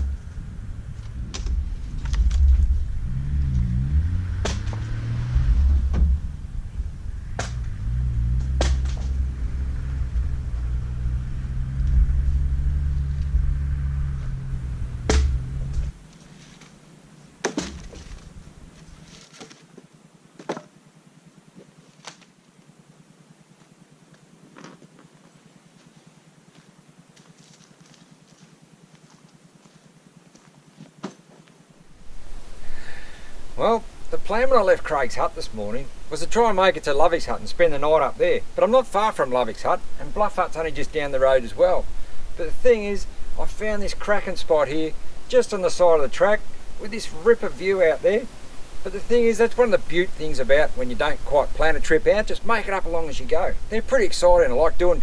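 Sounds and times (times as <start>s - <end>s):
engine knocks and rattles: 0.0s - 16.7s, 17.5s - 19.6s
engine running under load: 0.0s - 17.2s.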